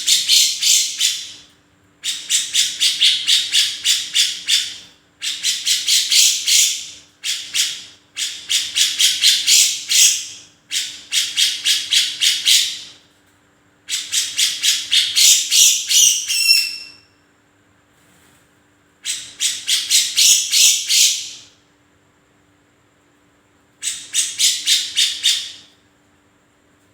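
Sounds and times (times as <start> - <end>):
bird singing harsh rapid notes: 0.0 - 1.4, 2.0 - 12.9, 13.9 - 17.0, 19.0 - 21.5, 23.8 - 25.6.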